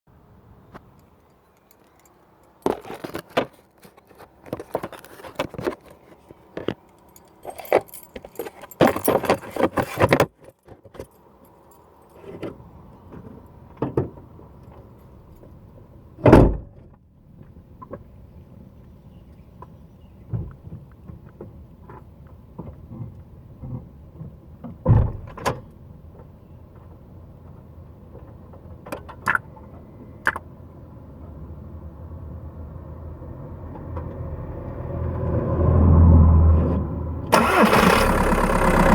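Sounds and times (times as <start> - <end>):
clicking and rattling clatter: 1.6 - 11.2.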